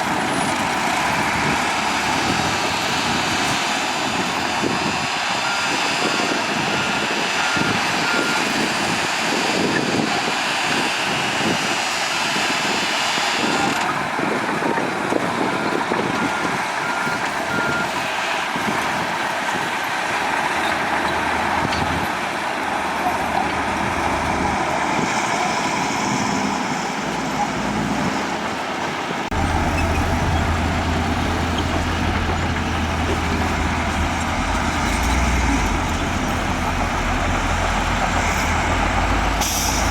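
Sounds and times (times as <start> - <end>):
heavy diesel machinery running: 0.0 - 39.9
reversing alarm beeping: 15.6 - 18.0.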